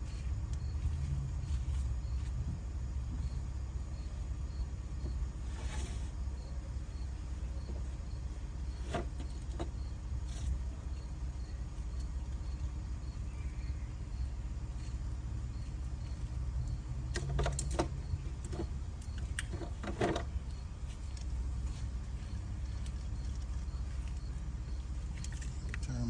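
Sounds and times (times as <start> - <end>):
low mechanical hum of machine: 0.0 - 26.0.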